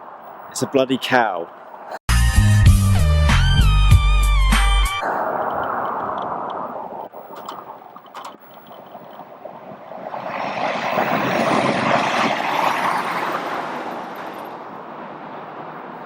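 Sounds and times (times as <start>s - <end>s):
vehicle passing on road: 5.0s - 16.0s.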